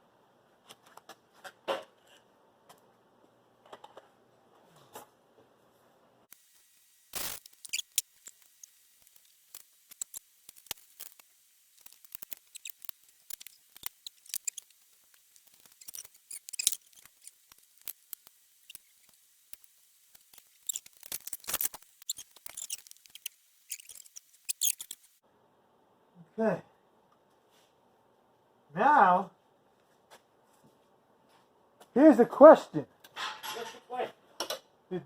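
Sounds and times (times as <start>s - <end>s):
hand tools clicking and scraping: 7.2s - 25.2s.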